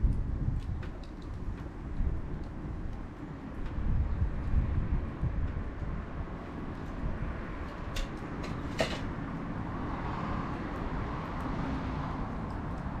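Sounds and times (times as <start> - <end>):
bonfire crackling and popping: 0.0 - 9.1.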